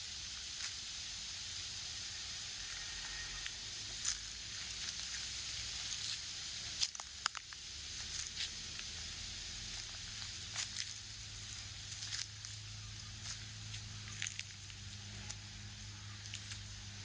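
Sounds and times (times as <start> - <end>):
steady background hiss: 0.0 - 17.0
footsteps of person walking: 8.0 - 15.4.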